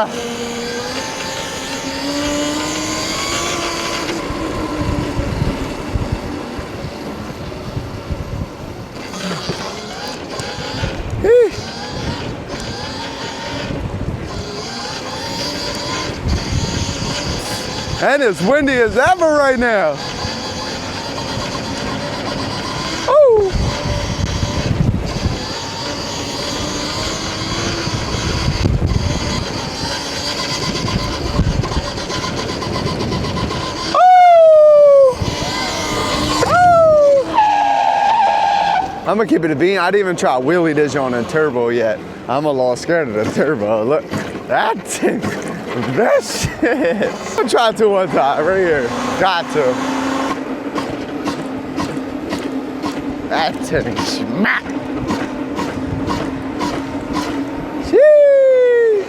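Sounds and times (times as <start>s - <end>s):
wind buffeting microphone: 0.0s - 37.6s, 38.8s - 58.3s
electric motor whine: 0.0s - 39.2s, 45.4s - 58.1s.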